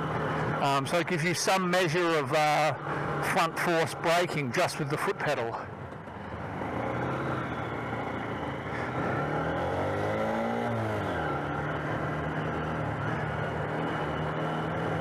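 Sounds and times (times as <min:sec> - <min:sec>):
road and wind noise: 0:00.0 - 0:15.0
small motorcycle engine revving: 0:06.0 - 0:15.0.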